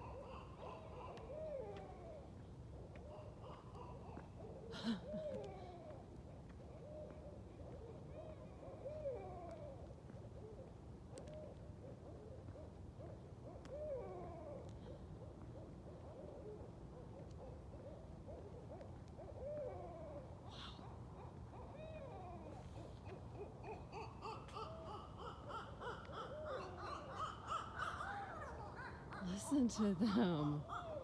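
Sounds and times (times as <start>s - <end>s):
owls cackling: 0.0s - 6.0s, 17.4s - 31.0s
owls hooting: 17.4s - 31.0s.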